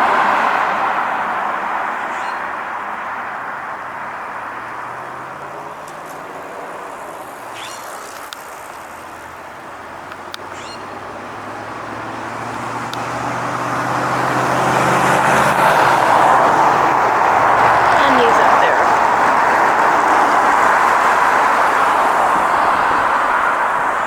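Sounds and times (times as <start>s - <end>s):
car approaching: 0.0s - 24.0s
faint high chirps: 7.5s - 8.0s, 10.5s - 10.8s.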